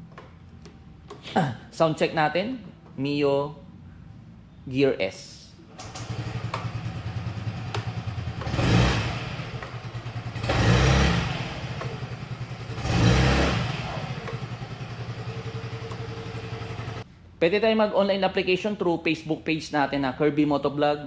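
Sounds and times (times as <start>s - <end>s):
scooter engine idling and revving: 5.8s - 17.1s.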